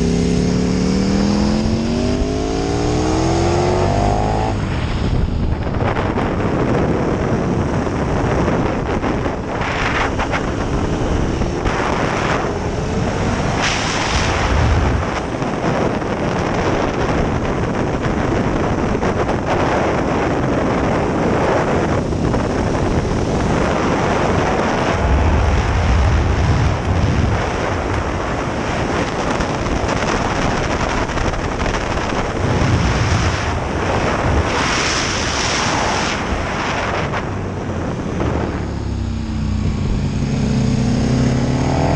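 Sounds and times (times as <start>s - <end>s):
motorcycle engine: 0.0s - 26.9s, 27.5s - 41.9s
wind buffeting on microphone: 0.0s - 41.9s.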